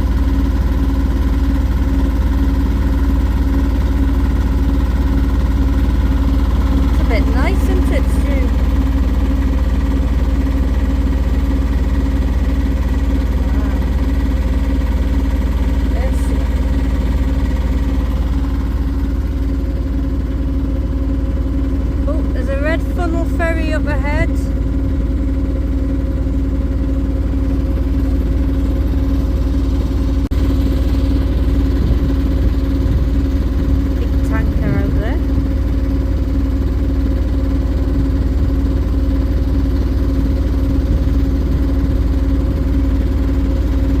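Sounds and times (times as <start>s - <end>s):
boat engine droning: 0.0s - 44.0s
steady hum: 0.0s - 44.0s.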